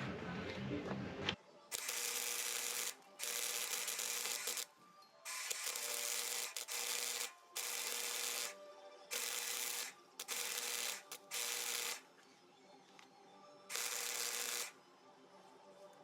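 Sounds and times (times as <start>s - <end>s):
welder humming: 1.7s - 4.7s, 5.3s - 12.0s, 13.7s - 14.8s
welding arc crackling: 1.7s - 4.7s, 5.3s - 12.0s, 13.7s - 14.7s.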